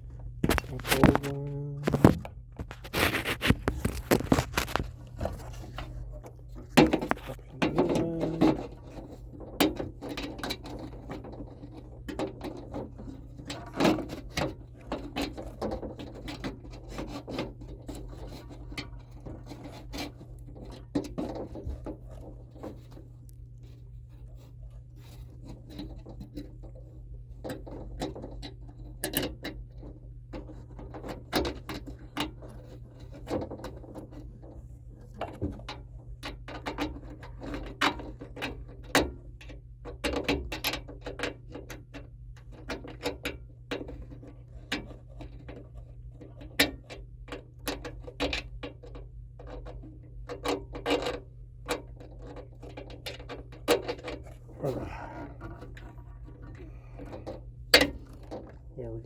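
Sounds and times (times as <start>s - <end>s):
steady low hum: 0.0s - 29.0s, 53.6s - 59.0s
clicks and rattles of metal parts: 27.4s - 54.5s, 55.2s - 58.7s.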